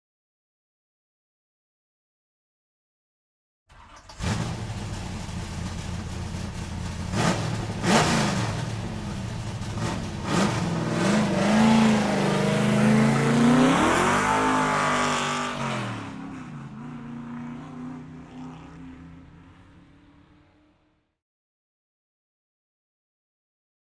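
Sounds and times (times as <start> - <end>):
car engine revving: 3.7 - 20.9.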